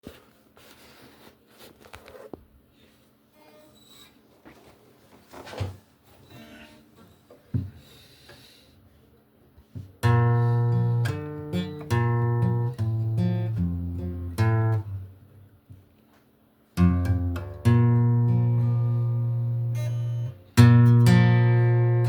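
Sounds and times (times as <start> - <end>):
acoustic guitar strummed chords: 10.0 - 15.1, 16.8 - 22.0.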